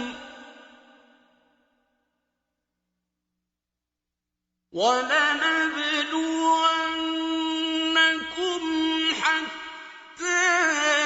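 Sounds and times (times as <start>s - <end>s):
echoing recitation voice: 0.0s - 1.7s, 4.8s - 11.0s.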